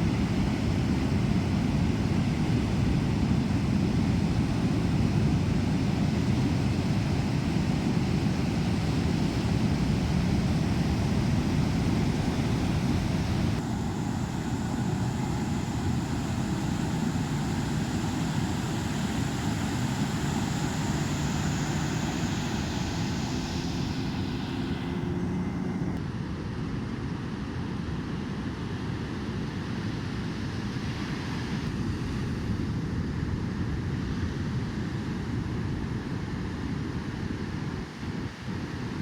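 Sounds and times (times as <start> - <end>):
wind: 0.0 - 39.0
boat engine running: 11.1 - 26.0.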